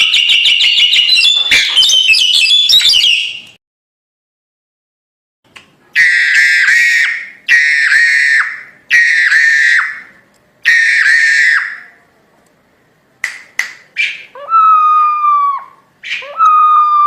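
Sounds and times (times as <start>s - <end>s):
bird giving harsh screechy calls: 0.1s - 3.4s, 6.0s - 10.1s, 10.7s - 11.9s.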